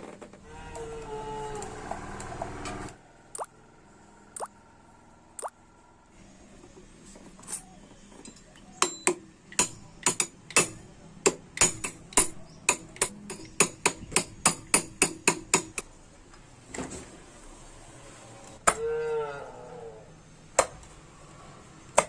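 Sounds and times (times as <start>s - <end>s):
hammer striking metal: 8.8s - 15.8s.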